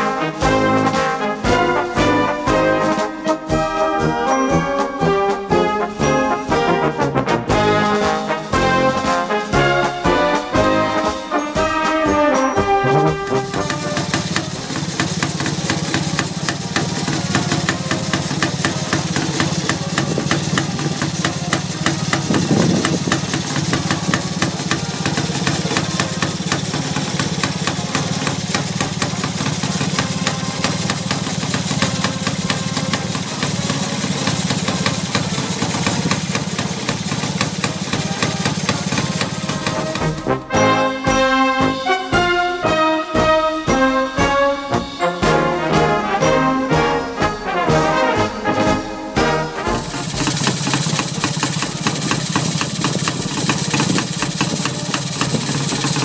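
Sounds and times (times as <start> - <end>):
brass music: 0.0 - 52.0
motorcycle engine idling: 13.4 - 40.3, 49.8 - 56.0.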